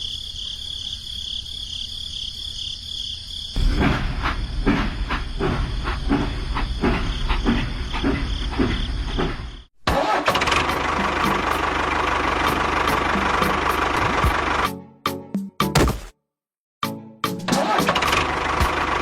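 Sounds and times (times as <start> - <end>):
small engine running unevenly: 3.6 - 14.7, 17.9 - 19.0.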